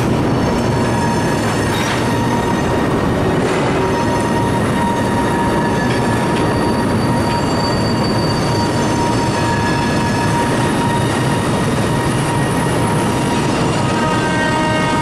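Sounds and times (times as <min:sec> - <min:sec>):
train wheels rumbling on rail: 0:00.0 - 0:15.0
faint wheel squeal: 0:03.8 - 0:11.5.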